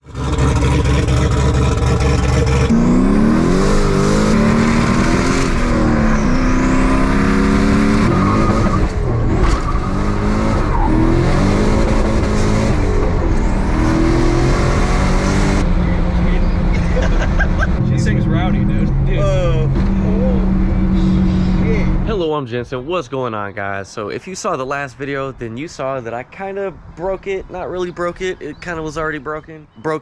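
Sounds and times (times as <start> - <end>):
car engine revving: 0.0 - 22.2.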